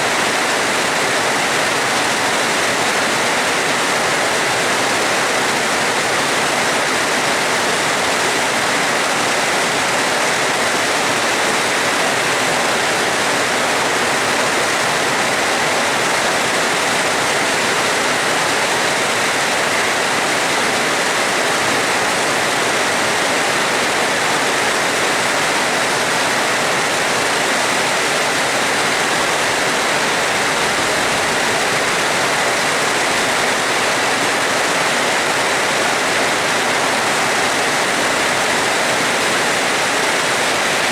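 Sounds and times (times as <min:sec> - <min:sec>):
rain falling: 0:12.6 - 0:40.9.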